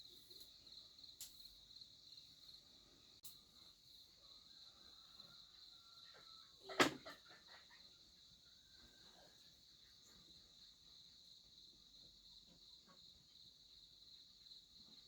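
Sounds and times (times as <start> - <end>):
insects chirring: 0.0 - 9.0.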